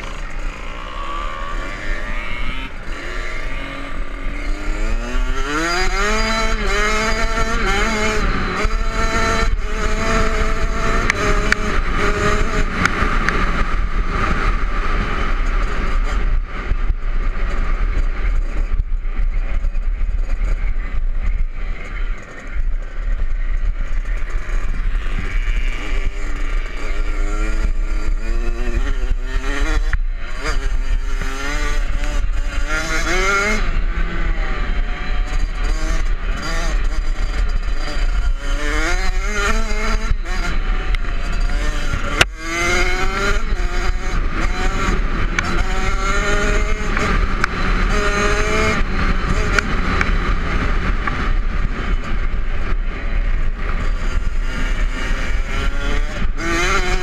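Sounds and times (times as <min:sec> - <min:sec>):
two-stroke dirt bike engine: 0:00.0 - 0:57.0.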